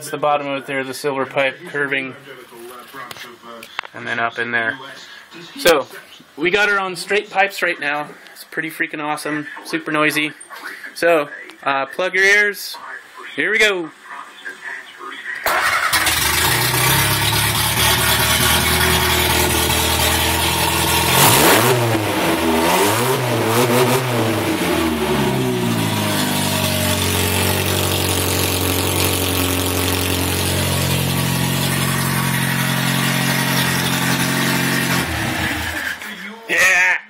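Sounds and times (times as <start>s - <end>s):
loud car engine idling and revving: 15.8s - 36.1s.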